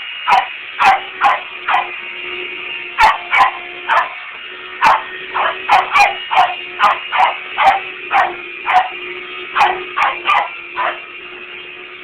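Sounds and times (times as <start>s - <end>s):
vacuum cleaner motor drone: 0.0s - 12.0s
dog barking: 0.3s - 2.0s, 3.0s - 4.2s, 4.8s - 9.0s, 9.6s - 11.1s.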